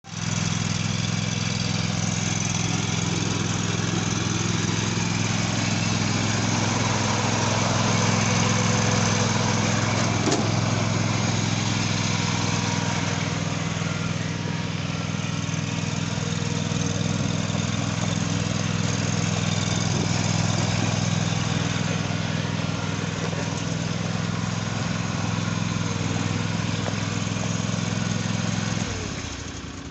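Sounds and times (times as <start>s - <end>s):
lawn tractor engine running: 0.0s - 29.9s.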